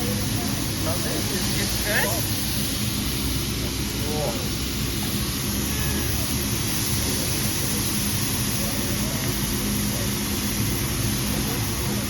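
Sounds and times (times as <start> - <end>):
exhaust hood humming: 0.0 - 12.0
food sizzling on griddle: 4.9 - 7.8.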